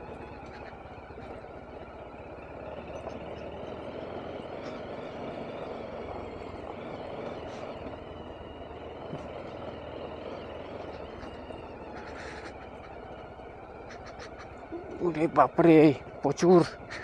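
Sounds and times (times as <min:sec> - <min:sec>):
motorcycle engine running: 0:00.0 - 0:17.0
road noise: 0:00.0 - 0:17.0.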